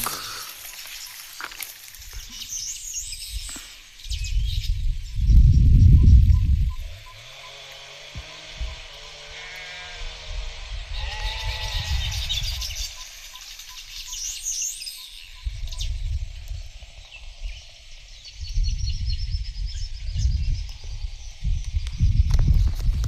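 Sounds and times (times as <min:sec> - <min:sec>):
wind buffeting microphone: 0:02.0 - 0:07.4, 0:08.1 - 0:13.1, 0:15.2 - 0:23.0
animal bleating: 0:09.2 - 0:10.3, 0:10.9 - 0:12.8
high bird chirps: 0:11.2 - 0:16.1.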